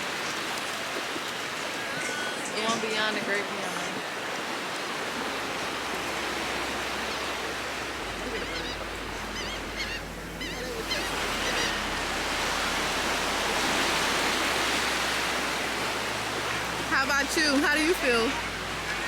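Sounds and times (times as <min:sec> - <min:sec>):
ocean surf washing: 0:00.0 - 0:19.0
high bird calls: 0:08.1 - 0:12.6.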